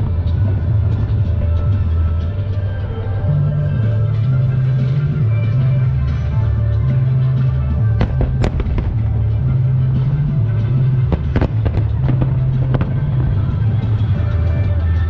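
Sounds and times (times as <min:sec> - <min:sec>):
loud music with deep bass: 0:00.0 - 0:15.0
fireworks bangs and cracks: 0:07.9 - 0:14.6.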